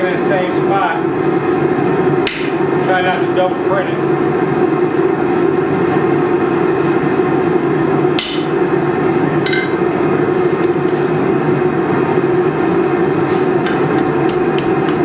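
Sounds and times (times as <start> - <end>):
forge running: 0.0 - 15.0
hammer striking steel: 8.2 - 8.5, 9.5 - 9.8.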